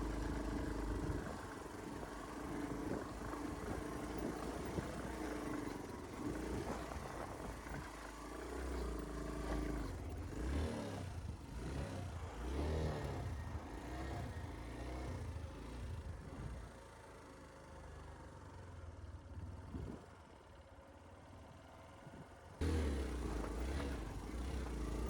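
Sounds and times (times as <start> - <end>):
vehicle engine revving: 0.0 - 15.2, 22.6 - 25.0.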